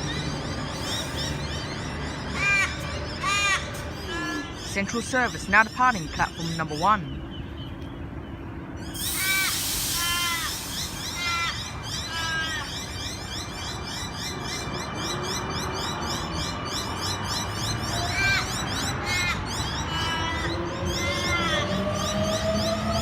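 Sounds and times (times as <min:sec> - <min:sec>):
small birds chirping: 0:00.0 - 0:23.0
electric train rumbling: 0:08.0 - 0:16.5, 0:19.6 - 0:23.0
harsh bird call: 0:08.8 - 0:14.7
train hiss: 0:09.0 - 0:12.5.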